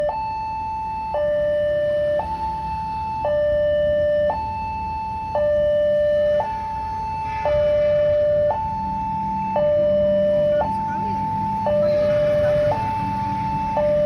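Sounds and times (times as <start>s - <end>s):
two-tone warning signal: 0.0s - 14.0s
low rumble: 6.4s - 14.0s.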